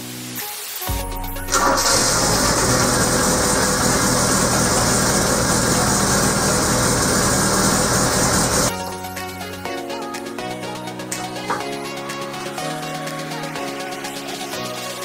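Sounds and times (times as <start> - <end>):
car engine starting and running: 1.5 - 8.7.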